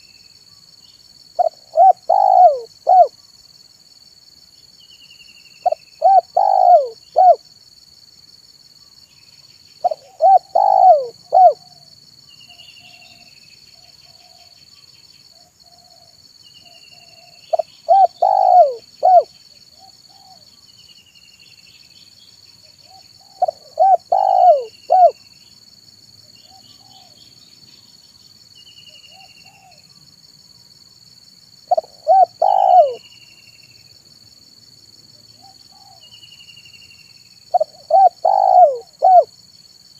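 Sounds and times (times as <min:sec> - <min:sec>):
small bird chirping: 0:00.0 - 0:03.2, 0:04.7 - 0:07.4, 0:09.0 - 0:25.5, 0:31.7 - 0:33.8, 0:35.4 - 0:39.3
dove cooing: 0:01.4 - 0:03.1, 0:05.6 - 0:07.4, 0:09.8 - 0:11.9, 0:17.5 - 0:20.4, 0:22.9 - 0:25.2, 0:31.7 - 0:33.0, 0:37.5 - 0:39.3.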